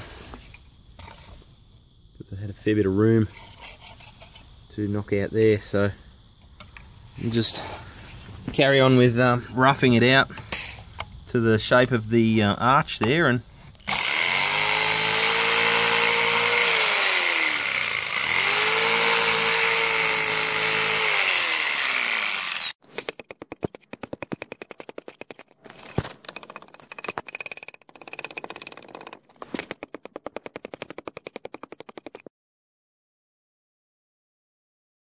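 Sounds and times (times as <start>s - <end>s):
power tool cutting concrete block: 13.9s - 23.2s
rapid clicking and tapping: 23.0s - 32.3s.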